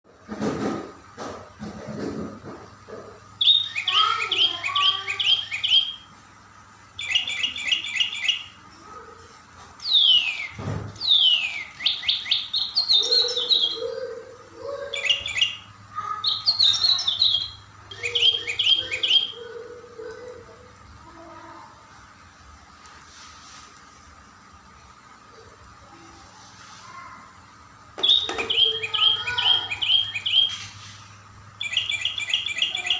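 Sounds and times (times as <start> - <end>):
songbird chirping: 3.4 - 6.2, 7.0 - 8.6, 9.8 - 20.8, 28.0 - 30.8, 31.5 - 32.9
long sweeping bird whistles: 9.8 - 13.8, 31.6 - 32.9.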